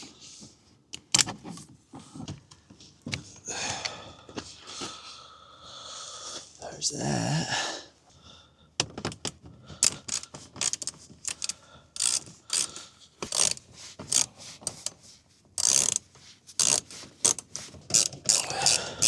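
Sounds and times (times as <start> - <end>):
ratchet wrench clicking: 9.8 - 14.9, 15.6 - 19.0.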